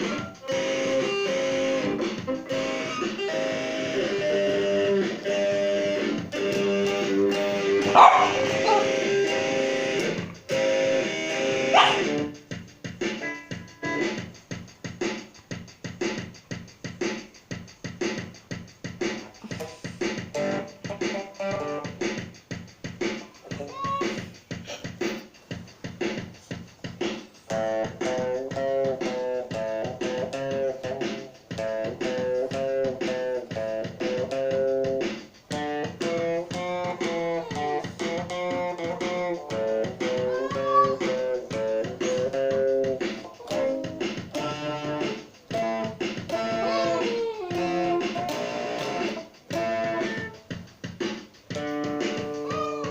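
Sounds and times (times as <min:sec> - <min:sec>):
guitar picked notes: 0:00.0 - 0:12.3
guitar percussive strumming: 0:00.0 - 0:12.4, 0:19.5 - 0:21.9, 0:27.5 - 0:50.4, 0:51.5 - 0:52.9.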